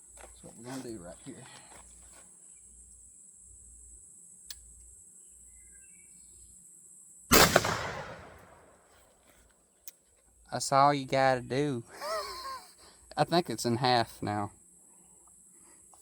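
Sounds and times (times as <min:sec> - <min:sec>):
shotgun shot with echo: 0:07.3 - 0:08.7.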